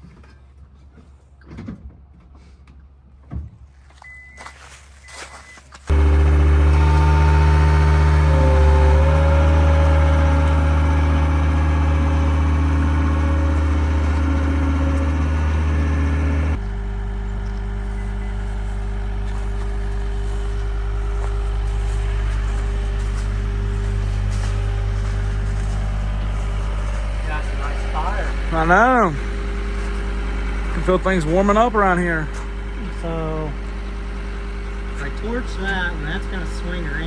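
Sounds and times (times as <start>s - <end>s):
engine running: 5.8s - 37.0s.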